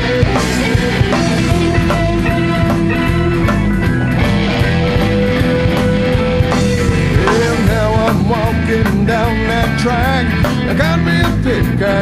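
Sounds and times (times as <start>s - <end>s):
bass: 0.0s - 12.0s
blues-rock band playing: 0.0s - 12.0s
drums: 0.0s - 12.0s
lead guitar line: 0.0s - 12.0s.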